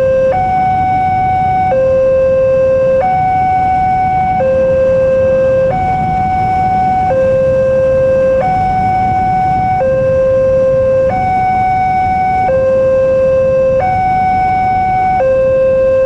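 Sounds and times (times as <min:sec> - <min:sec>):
low traffic rumble: 0:00.0 - 0:16.0
two-tone crossing warning alarm: 0:00.0 - 0:16.0.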